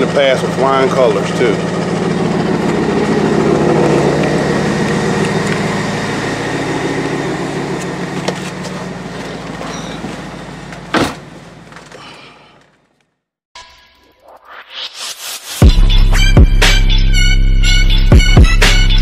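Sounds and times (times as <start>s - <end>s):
car engine idling: 0.0s - 13.0s
car door shutting: 8.2s - 12.2s.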